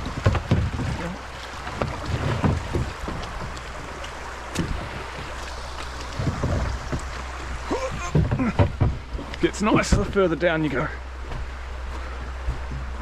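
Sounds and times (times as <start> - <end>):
paddle strokes splashing: 0.0 - 13.0
rushing creek water: 0.0 - 13.0
low thuds: 4.4 - 10.5, 11.2 - 13.0.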